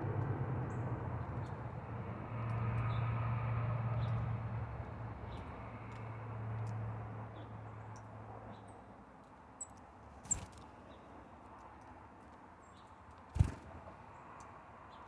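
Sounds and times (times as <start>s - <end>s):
low engine hum: 0.0s - 8.3s
small birds chirping: 9.6s - 11.1s.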